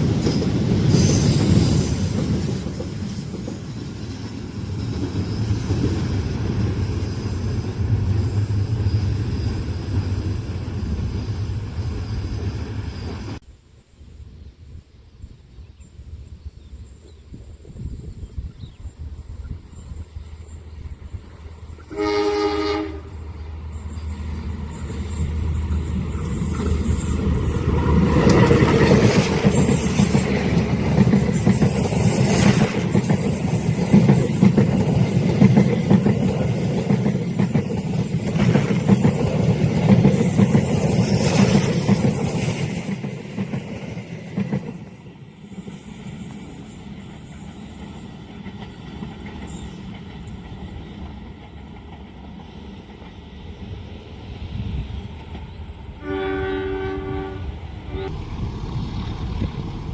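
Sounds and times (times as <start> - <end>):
train passing with rumble: 0.0 - 59.9
train horn blast: 21.8 - 23.3, 56.0 - 59.9.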